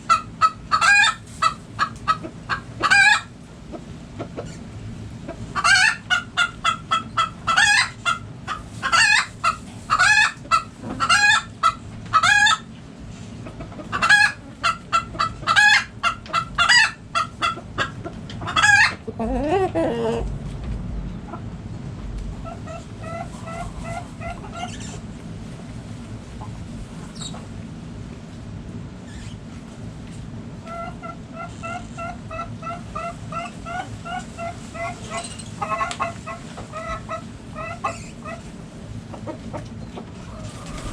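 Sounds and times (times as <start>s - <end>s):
hens clucking and squawking: 0.0s - 20.4s, 22.4s - 25.1s, 30.6s - 40.9s.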